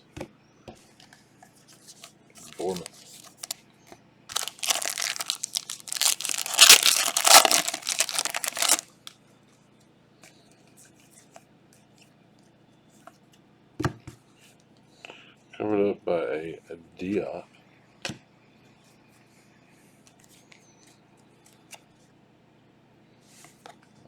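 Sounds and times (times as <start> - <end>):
card pack wrapper tearing: 2.5 - 3.6, 4.3 - 9.1
light handling: 4.3 - 9.1.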